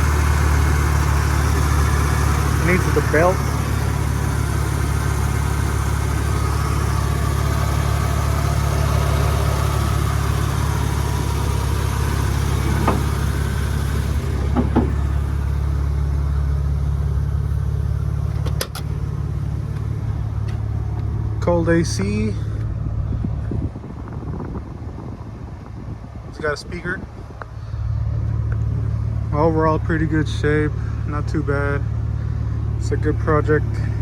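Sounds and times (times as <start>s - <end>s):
truck engine idling: 0.0s - 34.0s
sharp knocks: 12.6s - 13.3s, 14.5s - 15.0s.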